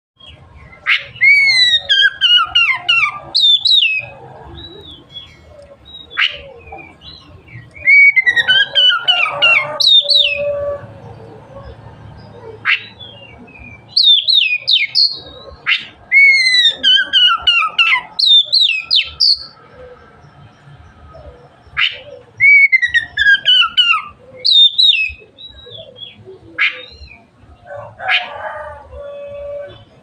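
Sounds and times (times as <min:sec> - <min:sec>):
bird singing whistled notes: 0:00.2 - 0:05.3, 0:05.9 - 0:10.5, 0:12.7 - 0:19.6, 0:21.8 - 0:27.3.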